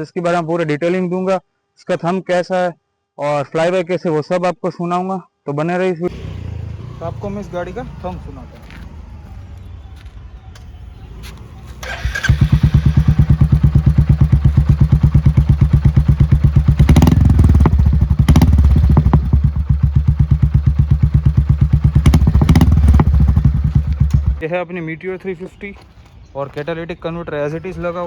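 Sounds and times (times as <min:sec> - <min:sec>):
motorcycle engine thumping idle: 0:06.1 - 0:10.8, 0:11.8 - 0:24.4.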